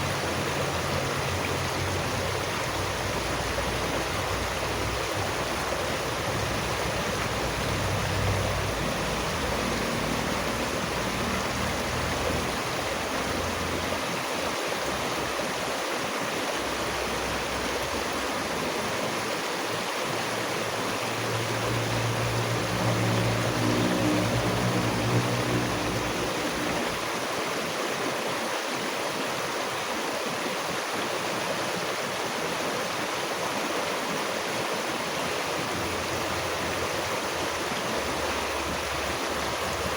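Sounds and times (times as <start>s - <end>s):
stream water rushing: 0.0s - 39.9s
low drone: 21.0s - 27.0s.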